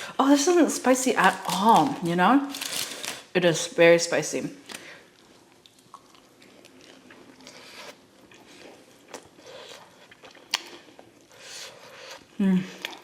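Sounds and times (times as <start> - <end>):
person chewing food: 5.1 - 13.0.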